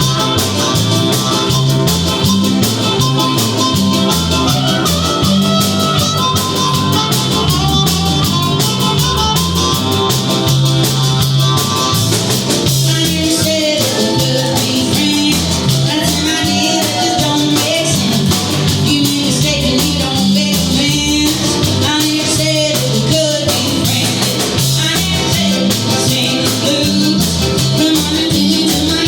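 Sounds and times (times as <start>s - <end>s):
drum kit beat: 0.0s - 29.0s
guitars and bass: 0.0s - 29.0s
wavering melody line: 0.8s - 9.4s.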